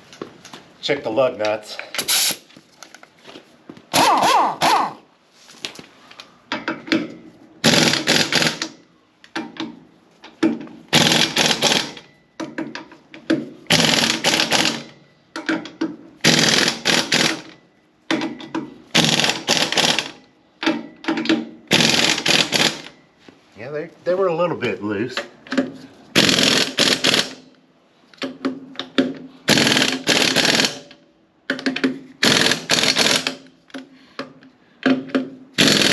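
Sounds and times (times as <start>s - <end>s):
wrench clicking on lug nuts: 6.6s - 22.9s.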